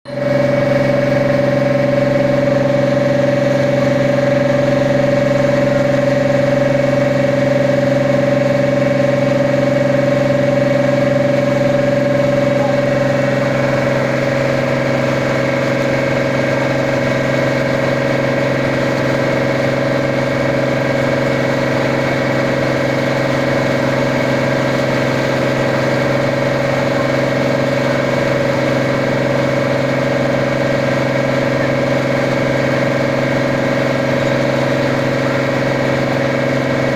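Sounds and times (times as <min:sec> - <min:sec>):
boat engine droning: 0:00.0 - 0:36.9.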